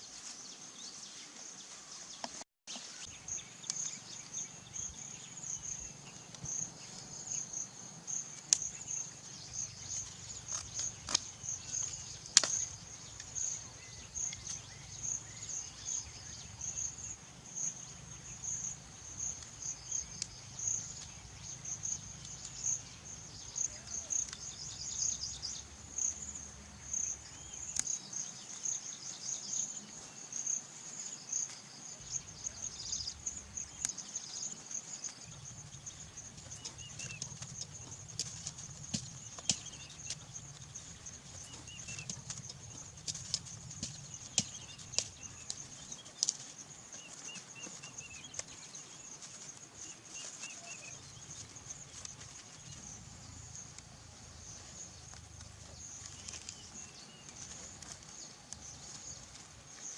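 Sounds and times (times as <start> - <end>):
insects chirping trill: 2.8 - 59.9
rustling: 33.2 - 59.9.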